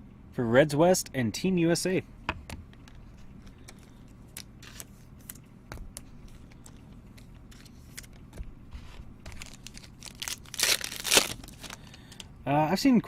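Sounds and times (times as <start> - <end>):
cards clicking and rustling: 2.7 - 12.3
wrapper rustling: 6.2 - 12.2.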